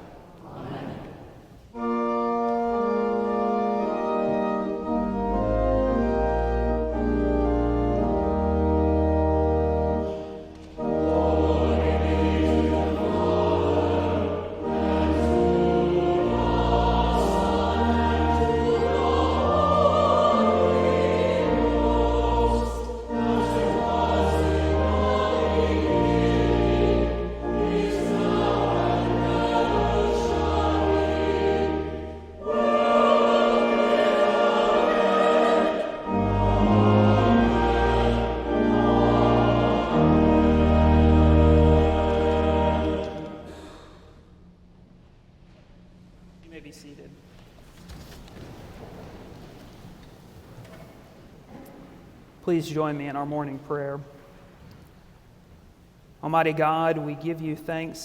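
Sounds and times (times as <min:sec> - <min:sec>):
choir singing: 0:00.0 - 0:44.1
church organ chords: 0:01.7 - 0:43.9.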